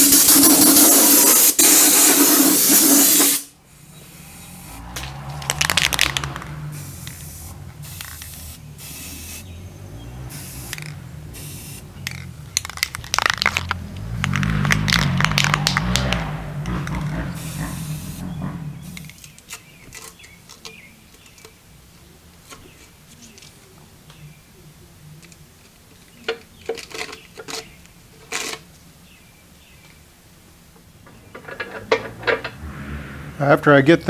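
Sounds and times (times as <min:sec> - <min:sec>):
spraying hiss: 0:00.0 - 0:04.9, 0:06.7 - 0:09.6, 0:10.2 - 0:12.1, 0:17.3 - 0:18.3.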